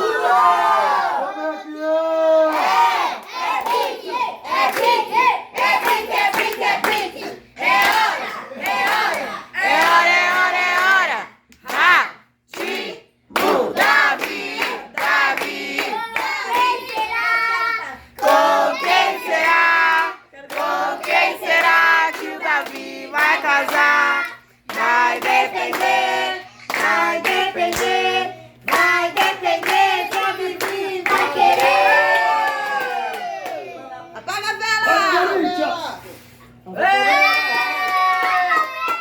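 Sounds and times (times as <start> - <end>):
group singing a celebration song: 0.0 - 33.4
hands clapping: 26.7 - 28.0, 28.7 - 33.6, 37.3 - 39.0.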